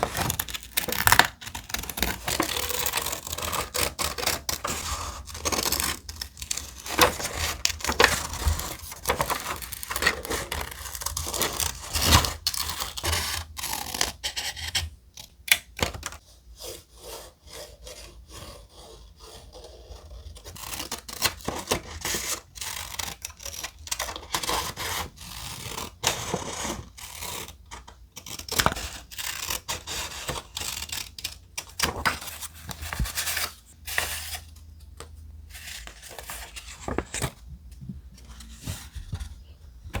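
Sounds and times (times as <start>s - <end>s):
thick paper rustling: 35.5s - 40.0s.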